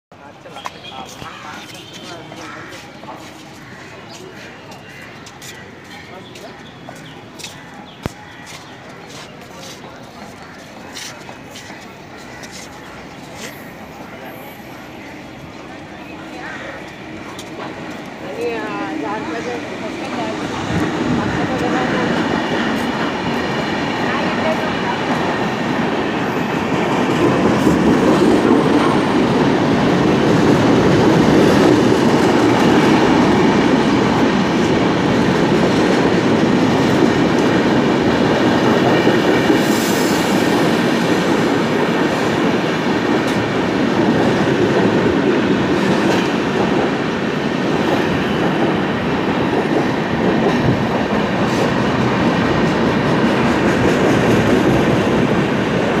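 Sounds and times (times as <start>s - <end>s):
train wheels rumbling on rails: 0.4s - 56.0s.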